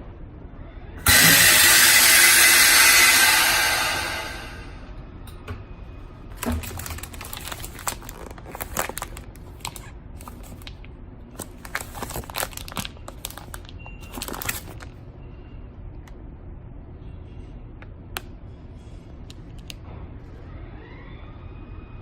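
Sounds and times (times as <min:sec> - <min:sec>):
plastic bag crinkling: 0:06.4 - 0:15.0.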